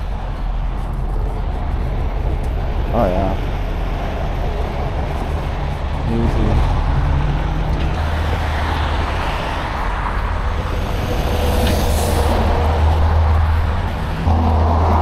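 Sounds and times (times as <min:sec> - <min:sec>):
diesel truck engine running: 0:10.0 - 0:15.0.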